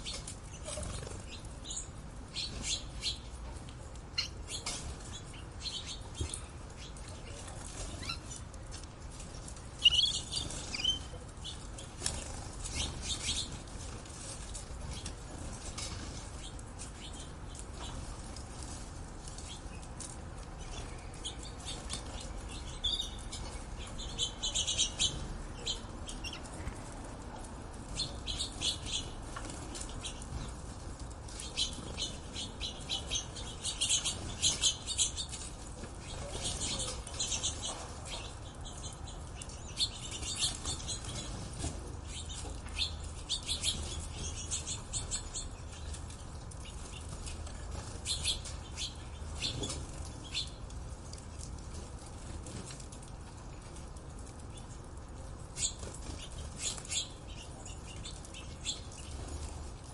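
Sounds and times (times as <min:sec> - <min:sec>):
small birds chirping: 0:00.0 - 0:53.0, 0:53.6 - 0:59.7.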